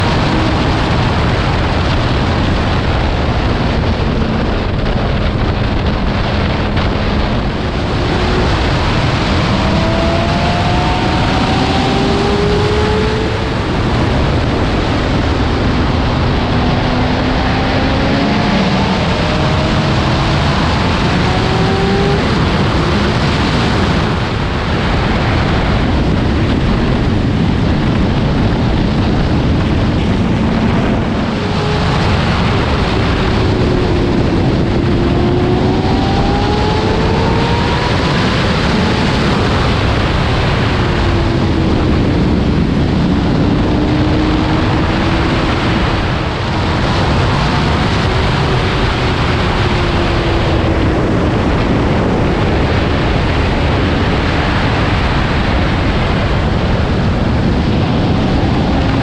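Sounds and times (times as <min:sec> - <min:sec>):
wind rushing on microphone: 0:00.0 - 0:59.0
motorcycle engine running: 0:25.9 - 0:52.7.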